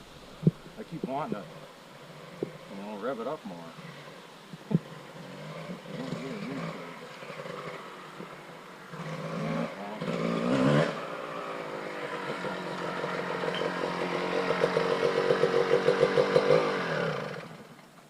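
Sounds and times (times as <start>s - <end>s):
dirt bike engine revving: 0.0s - 17.8s.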